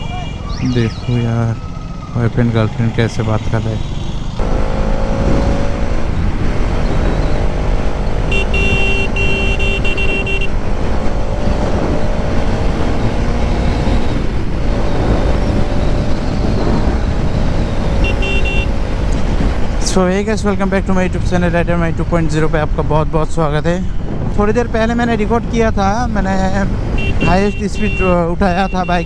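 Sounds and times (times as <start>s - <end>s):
vehicle horn: 0.0s - 1.2s, 8.2s - 10.6s, 17.8s - 18.9s, 26.9s - 29.0s
wind and road rush: 0.0s - 29.0s
motorcycle engine running: 1.6s - 19.8s, 26.8s - 29.0s.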